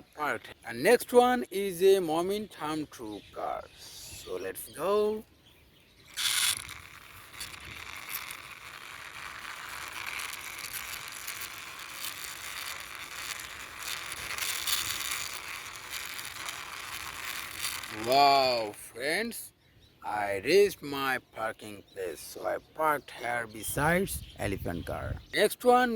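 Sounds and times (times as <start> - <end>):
toy car wheels rolling and rattling: 6.1 - 18.7.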